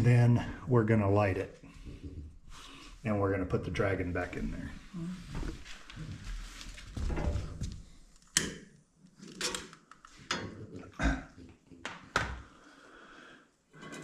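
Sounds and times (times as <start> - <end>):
rustling: 4.8 - 8.3.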